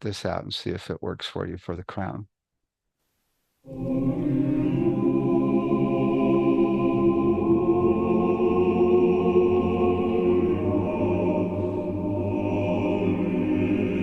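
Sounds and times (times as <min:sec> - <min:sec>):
choir singing sustained chords: 0:03.7 - 0:14.0.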